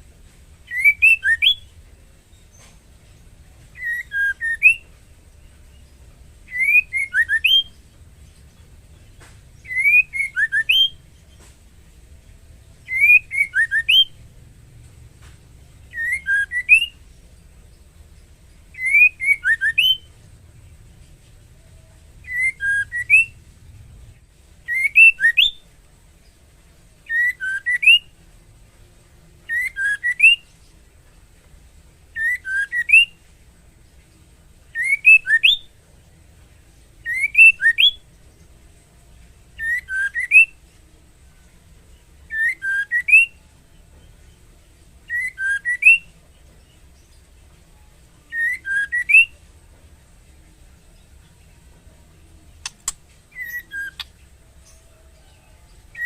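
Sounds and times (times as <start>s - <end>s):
bird rising whistled call: 52.6s - 54.1s.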